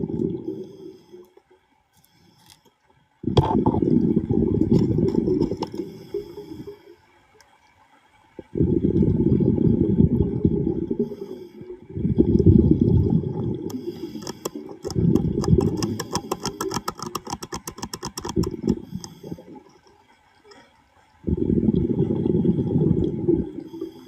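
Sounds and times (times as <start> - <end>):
regulator bubbling underwater: 0.0 - 0.9, 3.2 - 6.8, 8.3 - 20.3, 21.0 - 24.0
rapid sharp clicks: 14.0 - 19.2.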